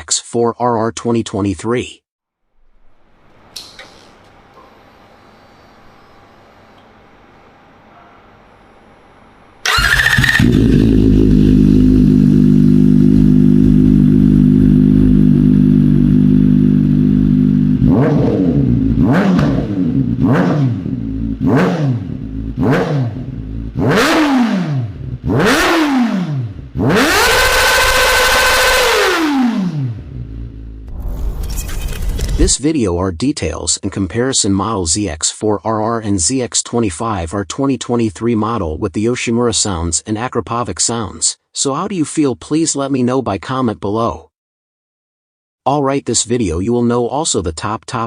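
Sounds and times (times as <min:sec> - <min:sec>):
motorcycle engine idling and revving: 0:09.6 - 0:30.9.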